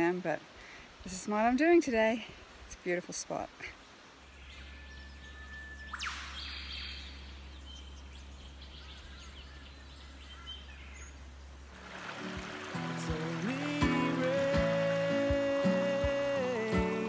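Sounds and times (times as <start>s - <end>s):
bird chirps: 4.2s - 11.2s
whistled bird note: 4.5s - 8.0s.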